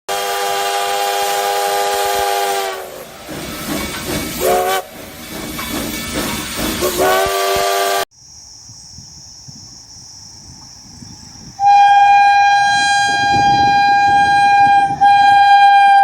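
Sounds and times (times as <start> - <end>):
locomotive air horn: 0.1 - 3.0, 4.4 - 4.9, 6.8 - 8.0, 11.6 - 16.0
rushing train noise: 0.1 - 8.0, 10.5 - 16.0.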